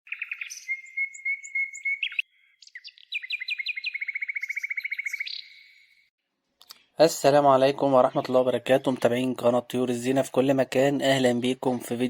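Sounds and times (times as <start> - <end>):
songbird singing: 0.0 - 6.1.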